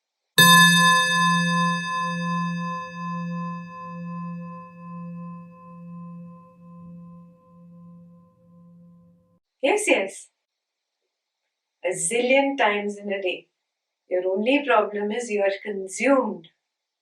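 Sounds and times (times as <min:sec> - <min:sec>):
singing bowl ringing: 0:00.4 - 0:09.2.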